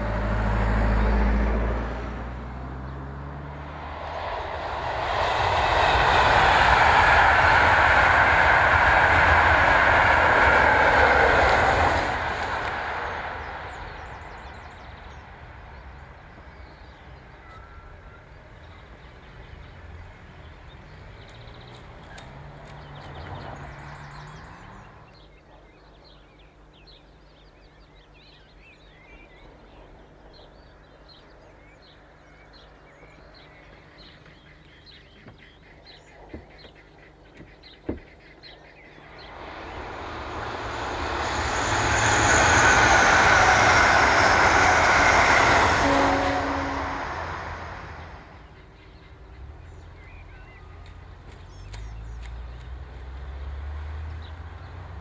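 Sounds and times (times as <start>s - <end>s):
vehicle engine revving: 0.0s - 14.3s, 39.2s - 48.4s
train rushing past: 0.0s - 25.0s, 38.8s - 49.7s
birds chirping: 10.5s - 52.8s.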